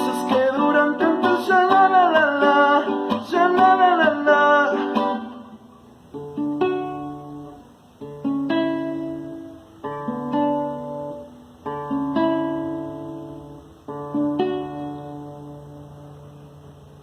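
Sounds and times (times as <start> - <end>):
person singing: 0.0 - 5.7
acoustic guitar strumming: 0.0 - 17.0.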